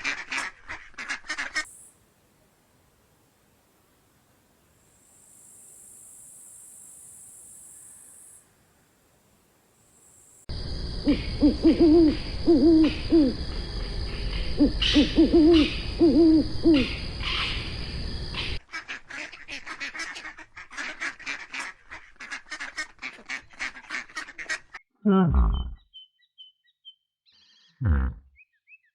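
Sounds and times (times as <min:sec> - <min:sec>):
background hiss: 0:00.0 - 0:18.6
bird hooting: 0:10.8 - 0:17.8.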